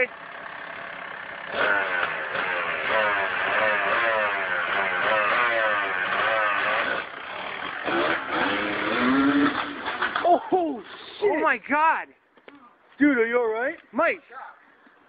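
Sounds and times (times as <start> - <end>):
dirt bike engine revving: 0.0 - 10.3.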